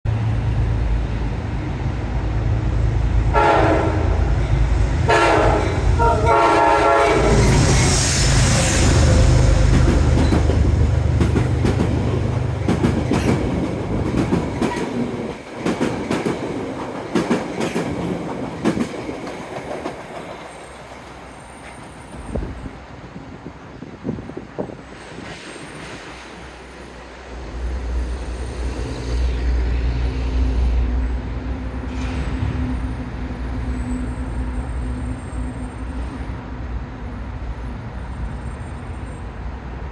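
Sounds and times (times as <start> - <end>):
locomotive engine rumble: 0.1 - 15.9
train horn blasts: 3.3 - 4.4, 5.1 - 10.8
train wheels clacking on rails: 3.4 - 22.7.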